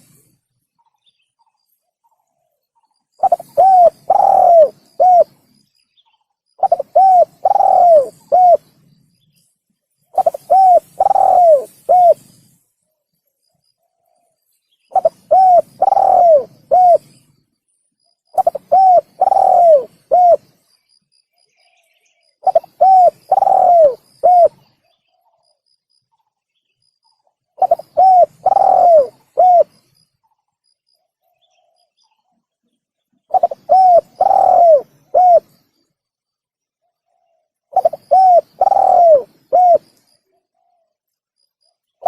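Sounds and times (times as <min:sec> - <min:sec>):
dove cooing: 0:03.2 - 0:05.5, 0:06.6 - 0:08.7, 0:10.1 - 0:12.3, 0:14.9 - 0:17.2, 0:18.3 - 0:20.5, 0:22.4 - 0:24.7, 0:27.6 - 0:29.8, 0:33.3 - 0:35.6, 0:37.1 - 0:40.9.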